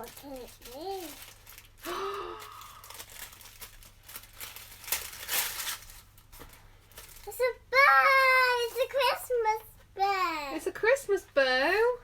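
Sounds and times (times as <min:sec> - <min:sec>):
wrapping paper crinkling and tearing: 0:00.0 - 0:09.0.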